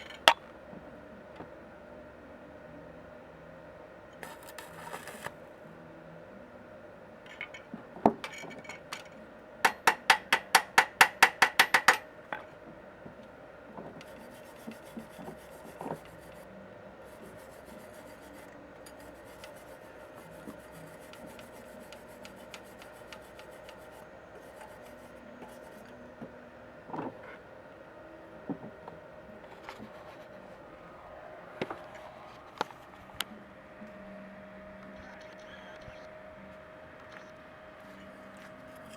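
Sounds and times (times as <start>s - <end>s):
hand tool scraping metal: 17.1s - 26.0s, 38.6s - 38.9s.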